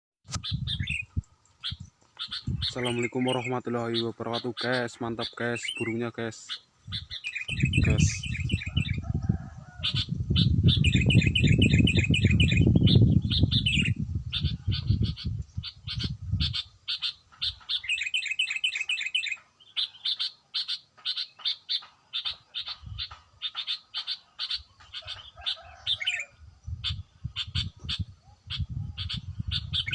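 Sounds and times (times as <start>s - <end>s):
bird singing high repeated notes: 0.3s - 9.0s, 10.4s - 25.0s.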